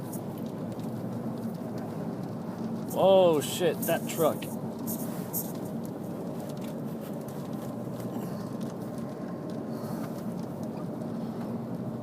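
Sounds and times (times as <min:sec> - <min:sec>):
road and wind noise in car: 0:00.0 - 0:12.0.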